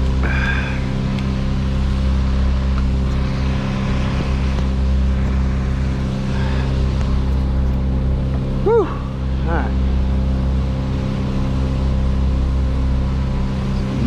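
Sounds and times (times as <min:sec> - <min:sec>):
large engine running steadily: 0:00.0 - 0:14.0.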